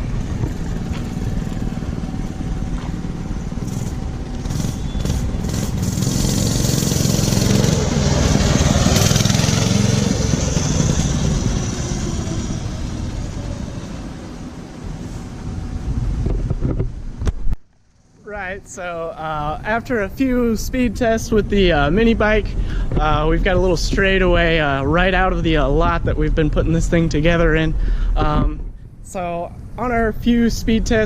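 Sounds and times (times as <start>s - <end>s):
minibike engine passing by: 0.0s - 17.1s.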